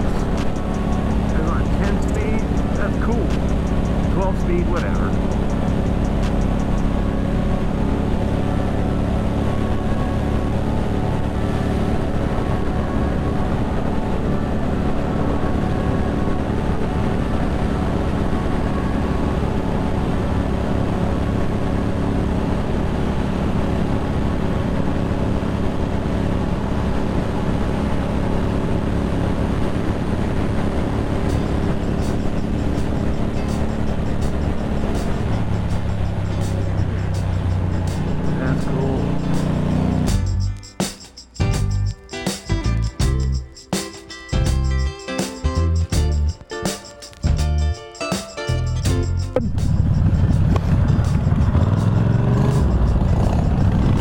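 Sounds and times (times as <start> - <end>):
motorcycle engine running: 0.0 - 40.6, 48.8 - 54.0
wind noise on microphone: 48.8 - 54.0.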